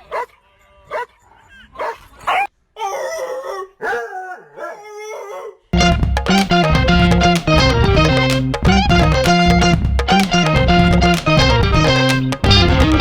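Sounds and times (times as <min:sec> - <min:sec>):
dog yipping: 0:00.0 - 0:05.7
dog howling: 0:00.0 - 0:05.8.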